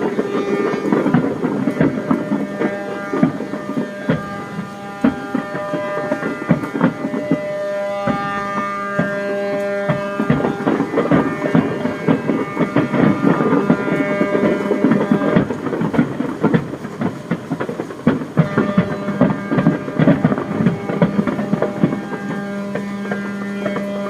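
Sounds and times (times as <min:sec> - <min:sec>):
sharp bangs and pops: 0:00.0 - 0:24.0
ships' horns blasting: 0:00.0 - 0:24.0.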